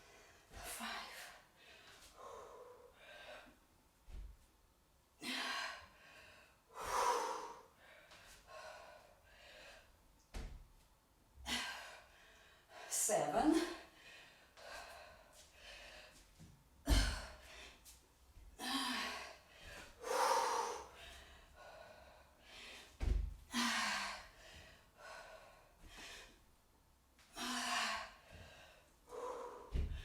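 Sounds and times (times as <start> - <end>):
woman gasping breaths: 0.0 - 3.6, 5.2 - 9.9, 13.5 - 17.8, 18.6 - 26.4, 27.3 - 30.0
dull thuds: 23.0 - 23.4.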